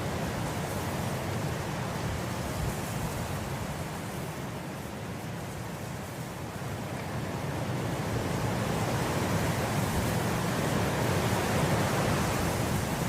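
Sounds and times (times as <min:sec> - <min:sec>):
wind blowing through grass: 0:00.0 - 0:13.0.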